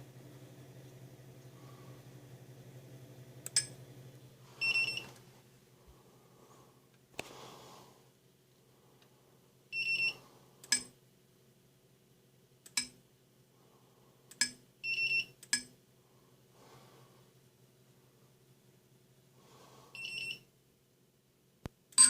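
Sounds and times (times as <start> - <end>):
faint steady hum: 0.0 - 22.0
electronic motor beeps: 4.6 - 5.1.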